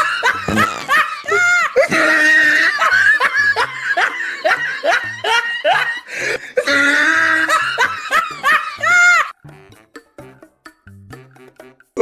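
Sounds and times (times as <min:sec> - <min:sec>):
snickering laughter: 0:00.0 - 0:09.3.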